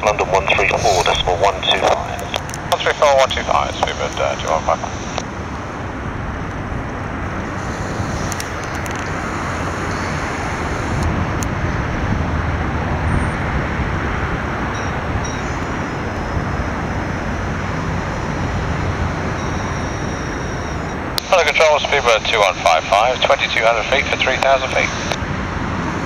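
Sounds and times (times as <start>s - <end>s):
jet engines roaring in cabin: 0.0s - 26.0s
airflow: 0.1s - 5.2s, 7.4s - 11.0s.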